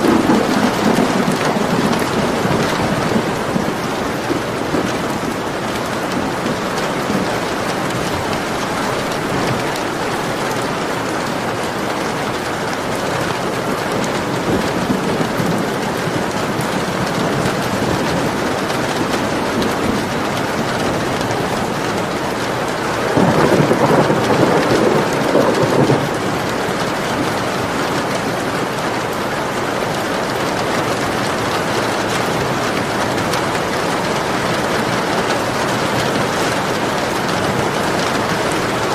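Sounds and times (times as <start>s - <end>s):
steady rain: 0.0s - 38.9s
thunder rumbling: 0.0s - 38.9s.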